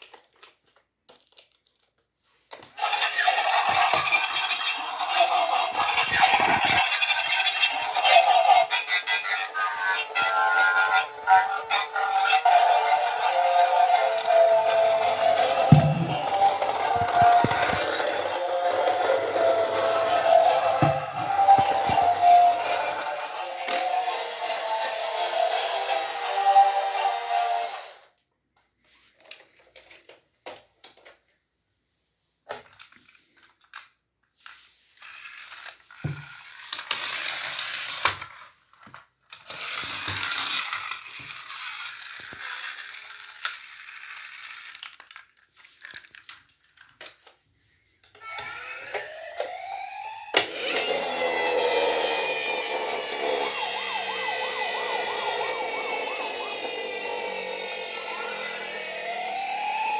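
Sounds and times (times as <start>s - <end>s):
toys clicking and rattling: 0.0s - 28.1s, 32.4s - 47.4s, 48.0s - 59.9s
toy sirens wailing: 2.8s - 28.1s, 48.1s - 59.9s.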